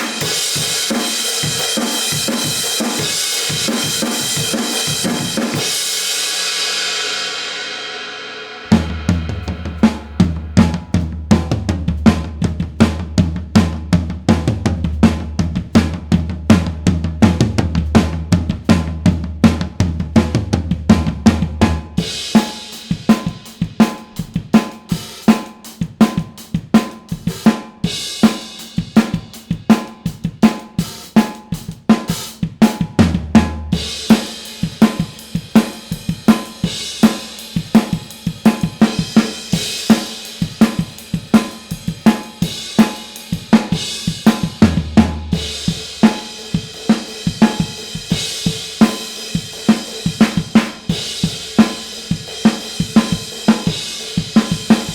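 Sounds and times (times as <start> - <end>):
cymbals and hi-hat: 0.0 - 16.0, 20.5 - 54.9
acoustic drum kit groove: 0.0 - 54.9
low ringing boom: 8.7 - 11.6.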